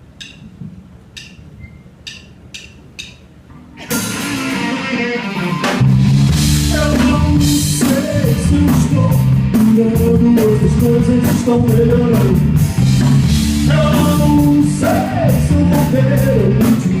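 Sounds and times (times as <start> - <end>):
drumstick count-in clicks: 0.1 - 3.3
guitar: 3.6 - 17.0
cymbals: 3.8 - 6.7
heavy bass and drum groove: 3.8 - 17.0.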